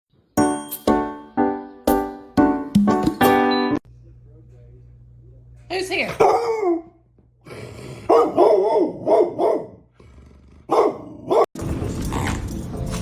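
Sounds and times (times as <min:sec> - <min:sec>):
dog barking: 0:06.1 - 0:07.0, 0:08.0 - 0:09.9, 0:10.7 - 0:11.6.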